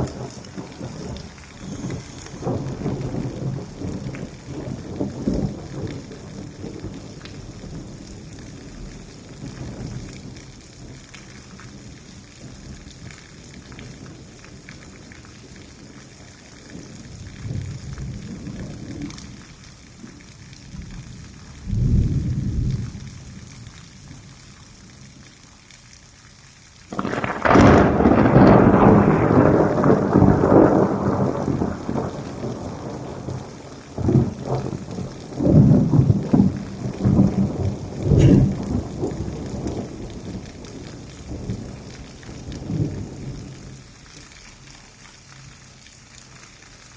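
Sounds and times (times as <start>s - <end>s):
loud thunderclap: 0.0s - 8.0s, 26.9s - 43.8s
distant thunder rumbling: 0.0s - 19.6s, 26.9s - 43.9s
steady rain: 0.0s - 46.9s.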